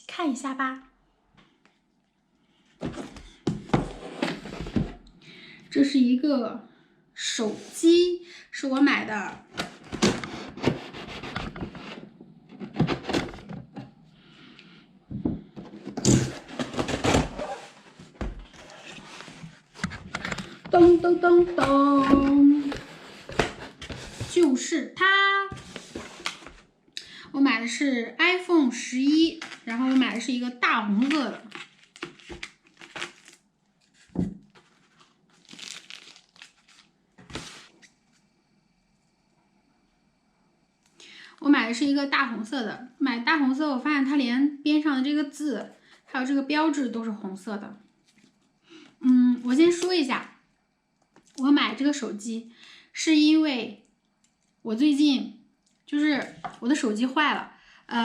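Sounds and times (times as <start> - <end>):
packaging crinkling and rustling: 29.4 - 30.3, 30.9 - 37.9.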